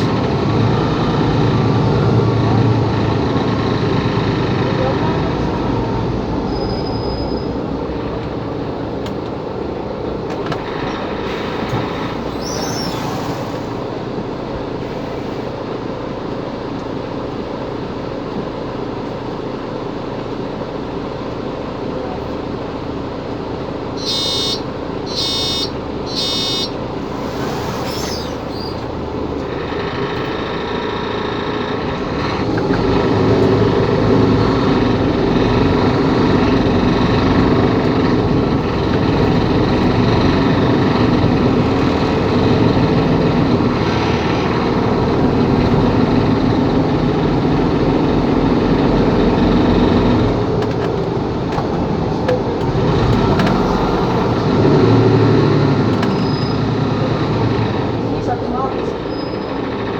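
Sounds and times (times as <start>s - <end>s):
bus diesel engine: 0.0s - 59.9s
short electronic warning beeps: 24.0s - 28.8s.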